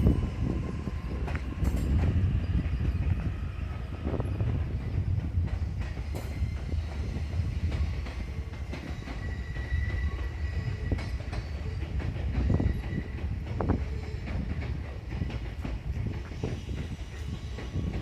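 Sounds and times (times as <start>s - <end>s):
high wheel squeal: 0.0s - 4.6s, 6.0s - 14.5s
train rumbling: 0.0s - 18.0s.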